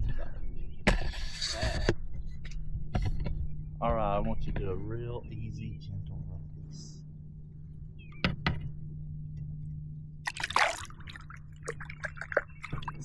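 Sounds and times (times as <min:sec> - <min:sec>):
fish splashing into water: 0:10.3 - 0:13.0
water dripping and trickling: 0:10.3 - 0:13.0.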